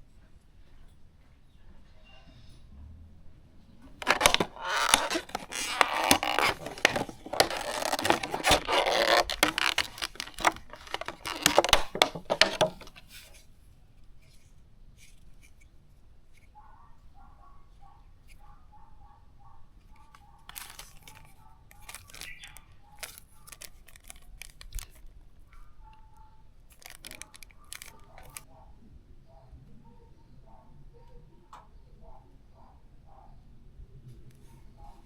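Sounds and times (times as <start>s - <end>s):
scraping and crinkling with clicks: 3.8s - 13.5s, 19.8s - 28.5s.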